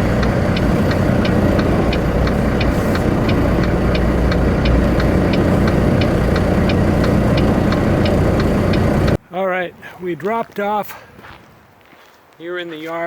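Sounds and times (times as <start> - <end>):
diesel truck engine running: 0.0 - 9.2
light ticking: 0.0 - 9.2.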